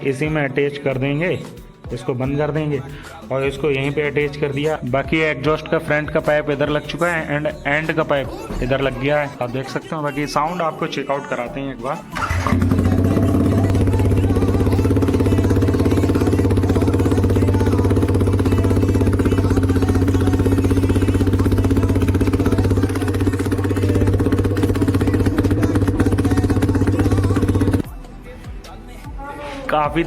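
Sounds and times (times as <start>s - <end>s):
motorcycle engine idling loudly: 12.2s - 27.8s.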